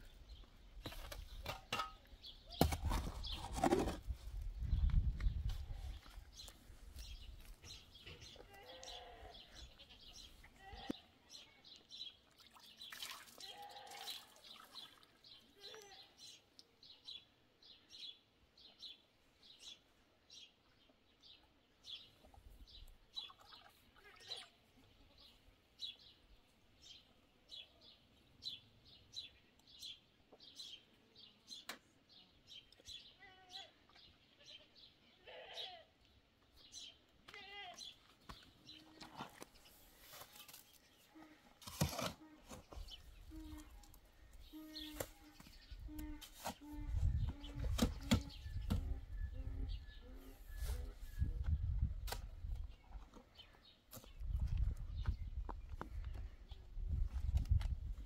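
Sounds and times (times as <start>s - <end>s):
bird chirping: 42.5s - 51.8s.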